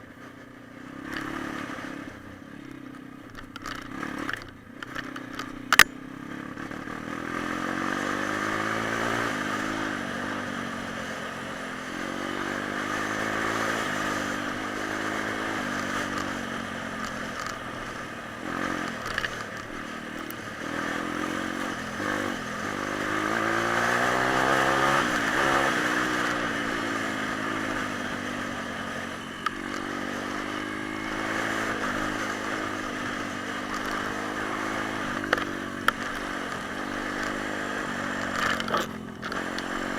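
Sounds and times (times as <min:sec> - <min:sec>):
sharp click: 0:03.3 - 0:06.0
pit bike engine revving: 0:03.5 - 0:39.9.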